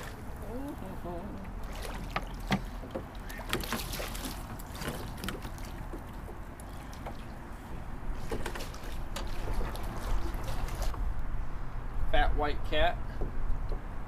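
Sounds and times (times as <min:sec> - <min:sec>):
water lapping at hull: 0:00.0 - 0:11.1.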